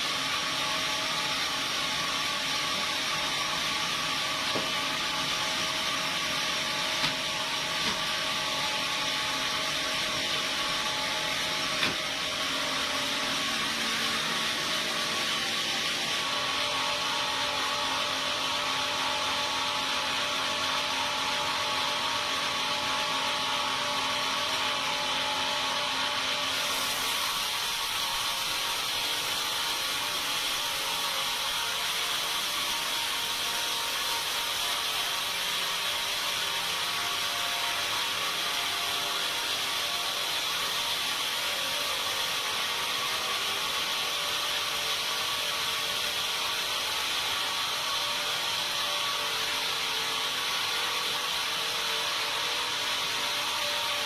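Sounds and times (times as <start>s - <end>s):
sawmill saw cutting timber: 0.0s - 54.0s.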